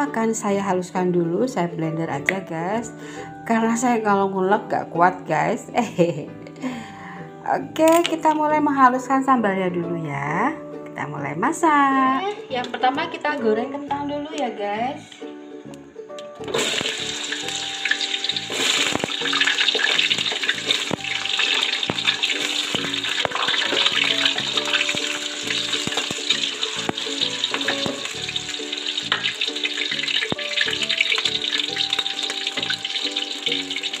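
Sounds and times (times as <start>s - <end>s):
background music: 0.0s - 34.0s
potatoes sizzling in hot oil: 16.4s - 34.0s.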